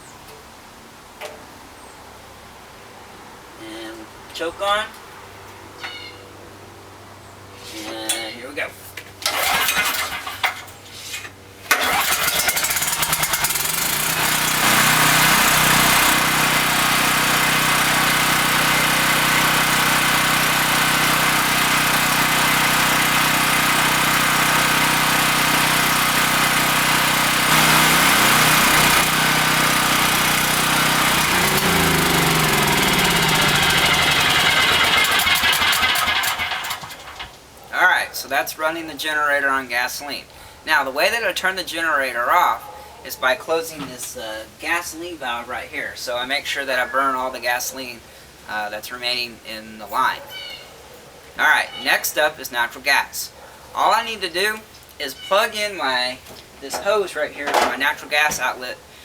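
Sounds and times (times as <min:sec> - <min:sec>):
generator engine running: 0:09.2 - 0:10.6, 0:11.7 - 0:37.4
generator pull-starting: 0:09.2 - 0:10.8, 0:11.6 - 0:37.5, 0:56.3 - 0:58.6.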